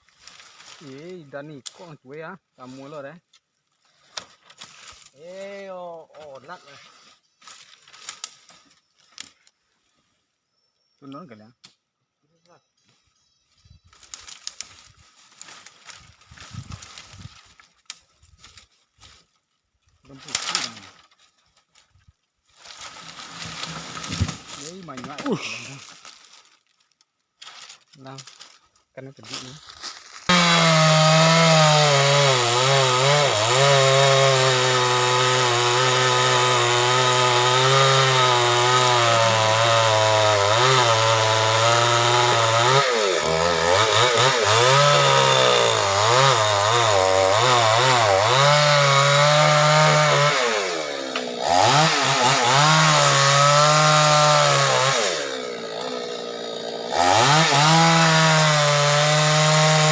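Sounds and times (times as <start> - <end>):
chainsaw cutting wood: 22.6 - 25.8, 30.3 - 59.9.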